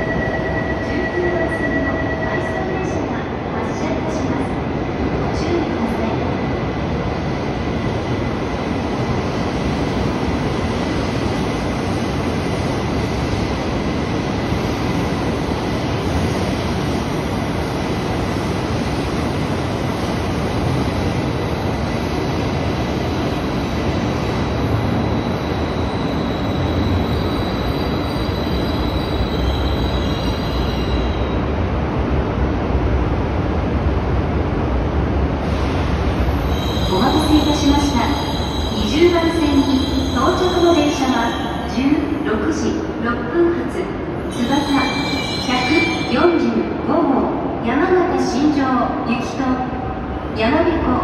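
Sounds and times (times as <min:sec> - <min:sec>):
high wheel squeal: 0:36.4 - 0:37.5, 0:38.1 - 0:41.7.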